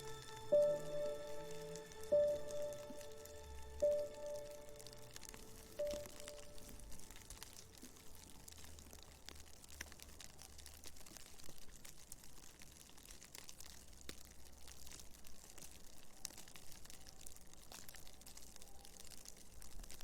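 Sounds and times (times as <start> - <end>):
blowing snow ticking: 0.0 - 8.9.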